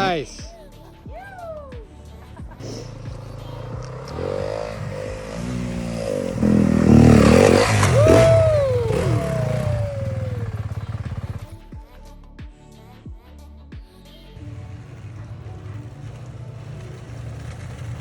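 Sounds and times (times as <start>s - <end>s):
dirt bike engine revving: 2.3s - 11.6s, 14.4s - 18.0s.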